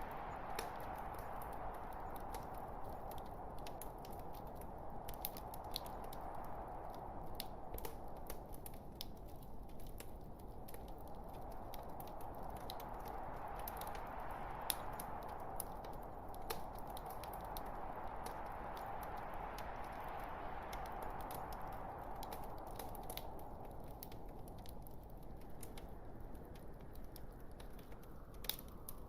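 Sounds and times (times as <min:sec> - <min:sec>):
burning wood crackling and popping: 0:00.0 - 0:29.0.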